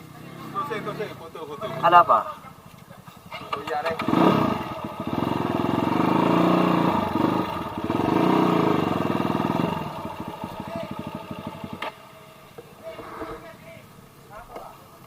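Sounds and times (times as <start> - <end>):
dirt bike engine revving: 3.2 - 13.5.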